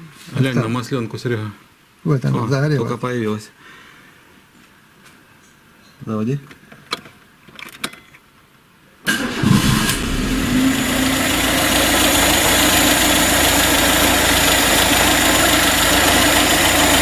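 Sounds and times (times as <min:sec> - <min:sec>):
car engine idling: 0:09.1 - 0:17.0
starter motor cranking: 0:09.1 - 0:17.0.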